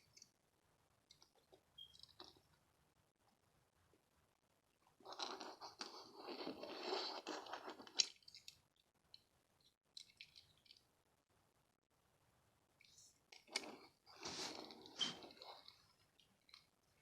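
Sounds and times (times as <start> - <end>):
faint clicks and scrapes: 0.0 - 0.4, 1.0 - 4.0, 4.7 - 10.9, 12.8 - 17.0
scratching and rustling: 5.0 - 8.6, 12.9 - 16.8.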